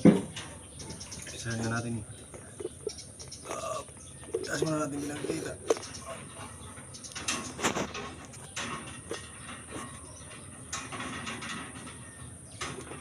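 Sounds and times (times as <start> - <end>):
steel rebar knocks and clinks: 4.3 - 13.0.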